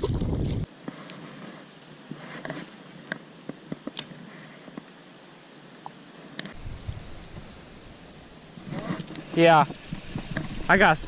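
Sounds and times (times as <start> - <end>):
wind rumbling on microphone: 0.0 - 0.7, 6.5 - 11.0
light rustling: 6.3 - 11.0.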